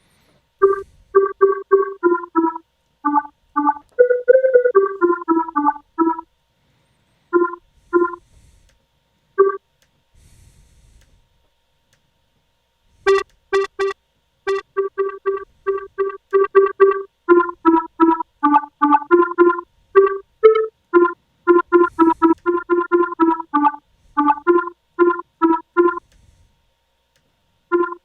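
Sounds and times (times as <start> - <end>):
plucky square-wave synth notes: 0.6 - 6.2, 13.1 - 26.0, 27.7 - 28.0.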